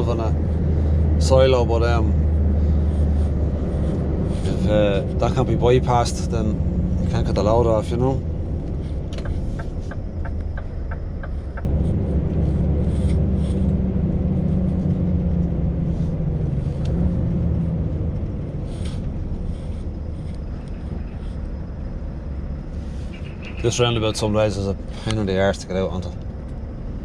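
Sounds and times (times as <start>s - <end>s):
truck engine under load: 0.0s - 27.0s
ticks: 9.1s - 11.7s.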